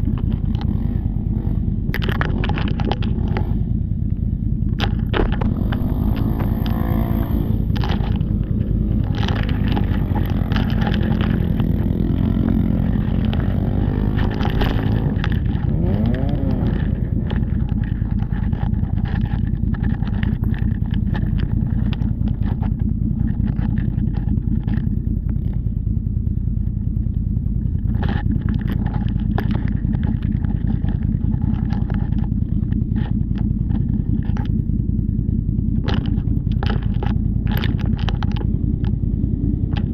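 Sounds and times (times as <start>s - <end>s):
off-road vehicle engine revving: 0.0s - 25.5s
vehicle knocks and rattles: 0.0s - 25.8s, 27.6s - 39.9s.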